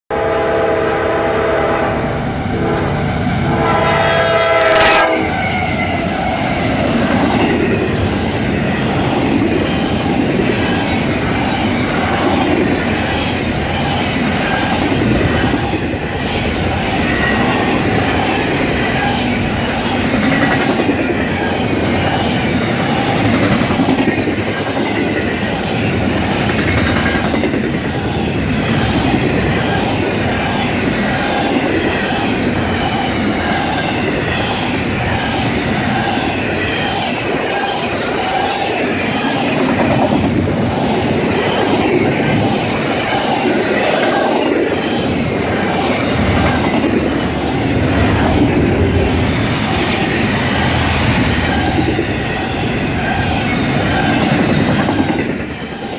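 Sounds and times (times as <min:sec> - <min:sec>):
locomotive air horn: 0:00.1 - 0:05.4
train wheels rumbling on rail: 0:00.1 - 0:55.9
clickety-clack over rail joints: 0:04.6 - 0:55.9.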